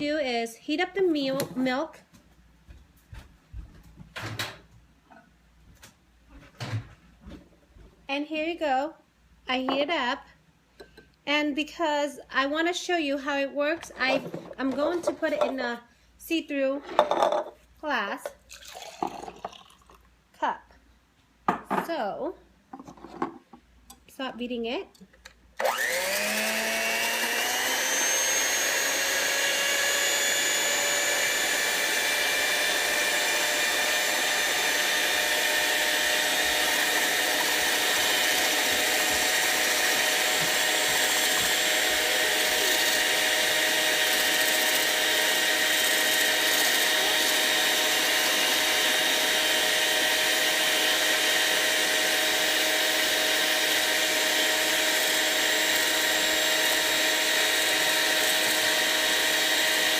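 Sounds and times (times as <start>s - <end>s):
electric beater whisking milk: 25.6s - 59.9s.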